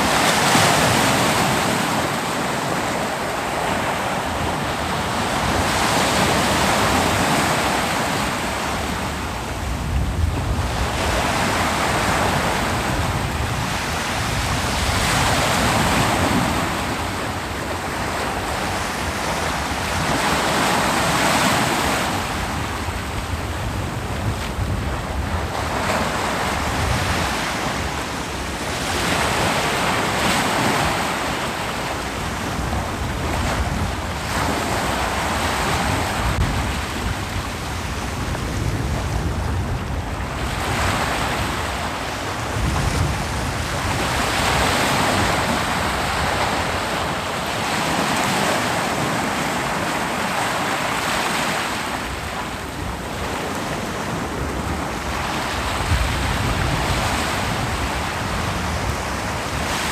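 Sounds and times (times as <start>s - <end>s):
ocean waves breaking: 0.0s - 59.9s
wind rumble on microphone: 0.0s - 59.9s.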